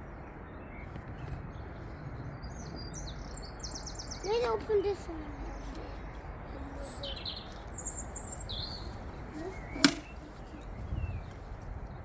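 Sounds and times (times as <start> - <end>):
small birds chirping: 0.0 - 12.0
sharp click: 9.8 - 10.1.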